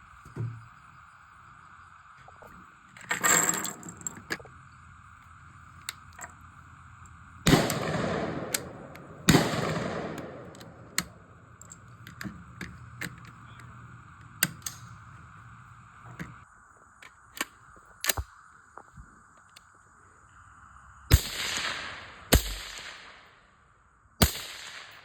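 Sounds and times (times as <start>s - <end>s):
suppressed rifle shots: 7.4s - 11.4s, 21.1s - 23.4s, 24.2s - 25.0s
faint clicks: 17.0s - 19.7s.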